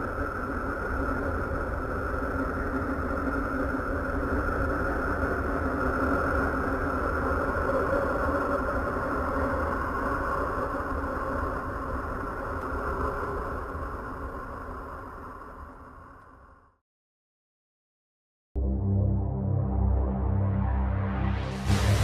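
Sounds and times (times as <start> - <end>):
droning held tones: 18.6 - 22.0
low rumble: 18.6 - 22.0.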